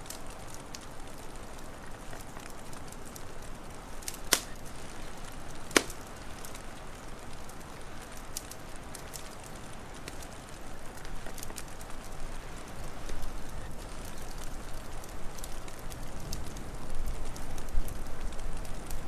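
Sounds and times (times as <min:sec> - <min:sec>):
wood fire crackling: 0:00.0 - 0:19.0
sharp loud pops: 0:05.7 - 0:06.0.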